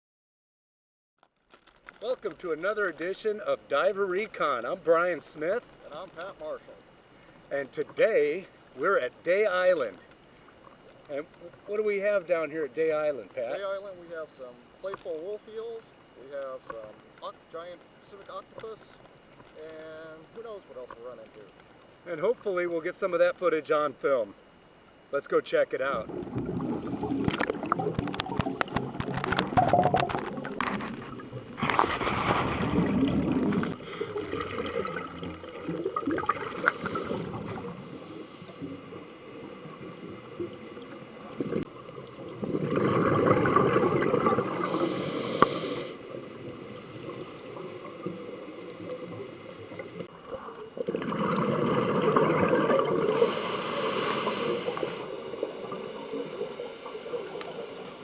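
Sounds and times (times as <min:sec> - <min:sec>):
bubbles gurgling underwater: 0:25.9 - 0:58.0
diver breathing through regulator: 0:26.5 - 0:27.6, 0:33.2 - 0:34.6, 0:36.4 - 0:38.9, 0:44.3 - 0:46.2, 0:53.0 - 0:55.4.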